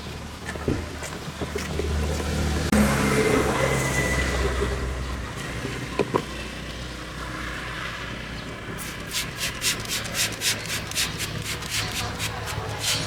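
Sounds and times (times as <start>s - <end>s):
brush scrubbing car surface: 8.8s - 13.0s.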